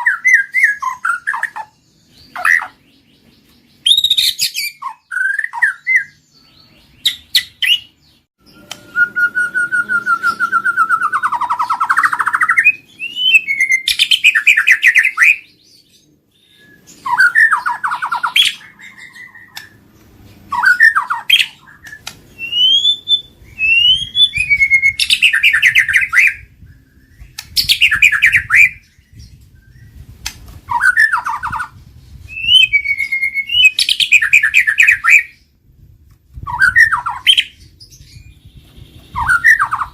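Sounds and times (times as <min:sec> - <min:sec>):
bird singing whistles and trills: 0:00.0 - 0:19.9, 0:20.5 - 0:35.6, 0:36.4 - 0:39.9.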